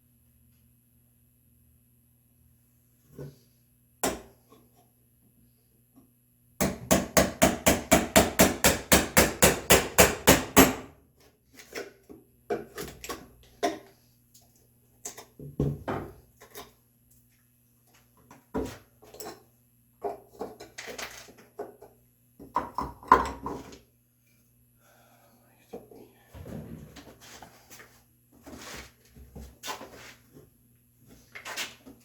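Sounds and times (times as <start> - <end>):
mallet striking chisel: 6.6 - 10.8.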